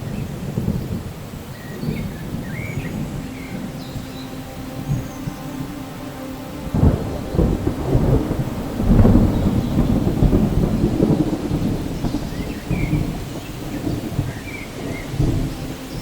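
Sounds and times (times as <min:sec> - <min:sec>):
steady rain: 0:00.0 - 0:16.0
thunder rolling: 0:04.8 - 0:16.0.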